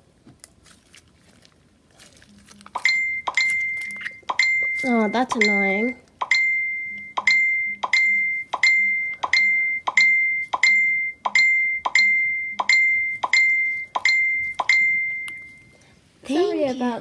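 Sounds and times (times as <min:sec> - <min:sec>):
text message alert pings: 0:02.8 - 0:15.8.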